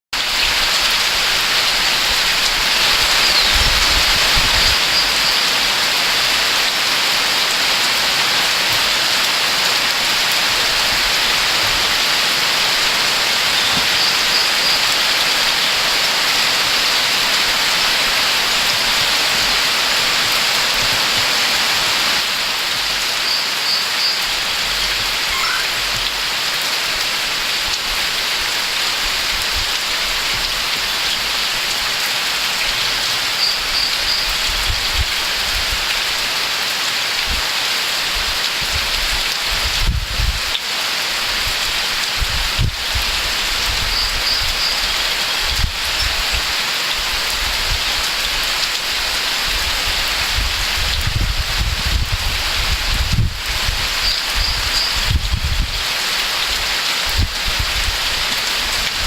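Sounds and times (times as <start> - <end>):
rain: 0.1 - 59.0
rushing creek and waterfalls: 0.1 - 59.0
small bird chirping: 25.2 - 26.0.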